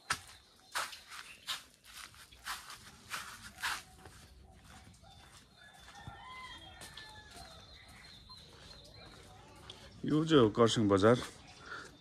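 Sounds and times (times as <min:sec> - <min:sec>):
short scuffs: 0:00.0 - 0:04.2.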